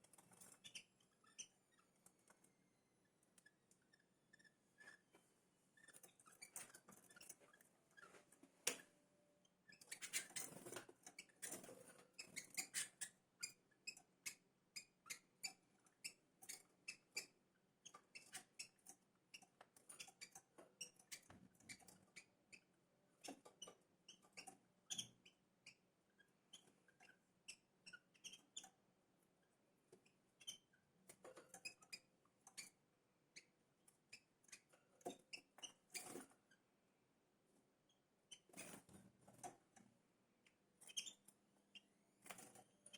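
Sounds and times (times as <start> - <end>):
small birds chirping and squeaking: 0.0 - 5.1, 5.8 - 8.8, 9.4 - 28.8, 30.0 - 36.7, 37.9 - 39.8, 40.7 - 42.9.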